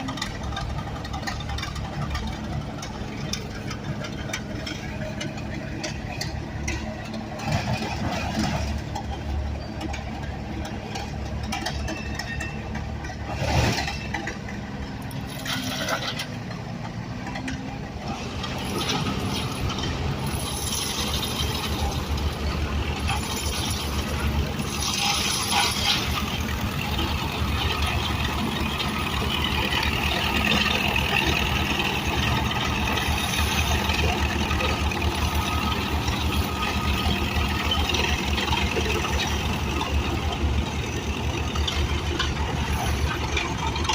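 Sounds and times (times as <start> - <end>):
engine running: 0.0 - 43.9.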